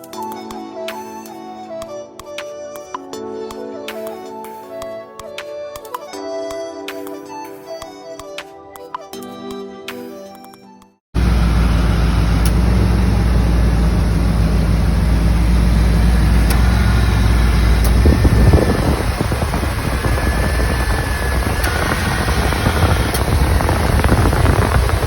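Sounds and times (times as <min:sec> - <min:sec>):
car engine idling: 0:11.2 - 0:25.0.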